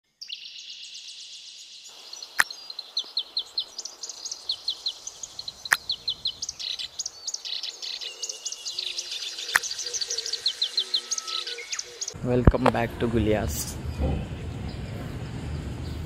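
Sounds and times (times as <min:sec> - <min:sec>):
small birds chirping: 0:00.0 - 0:12.2
sharp clicks: 0:09.5 - 0:09.7.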